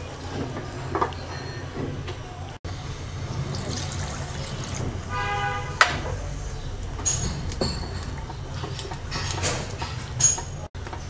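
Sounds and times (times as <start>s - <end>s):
water pouring into a pot: 3.3s - 5.2s.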